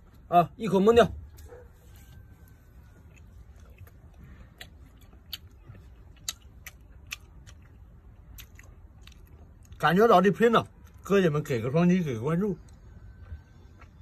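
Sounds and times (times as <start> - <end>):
person chewing food: 1.3 - 9.8, 12.6 - 14.0.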